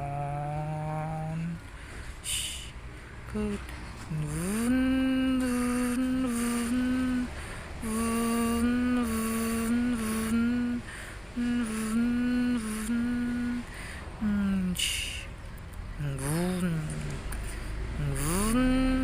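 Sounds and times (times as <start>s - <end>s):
person humming: 0.0s - 15.3s, 16.0s - 19.0s.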